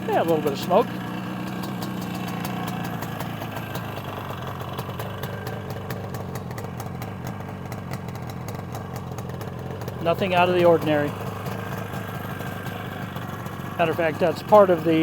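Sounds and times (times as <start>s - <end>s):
two-stroke motorcycle engine idling: 0.0s - 15.0s.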